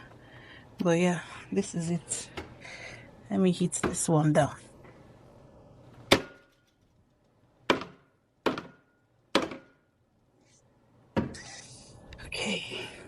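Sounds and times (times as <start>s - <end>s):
sharp knocks on hard object: 7.7s - 9.8s.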